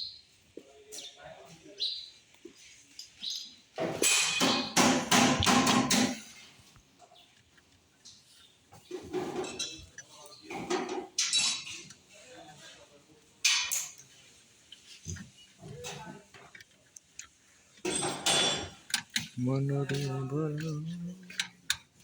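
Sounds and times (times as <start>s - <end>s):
hammering on metal: 4.0s - 6.2s.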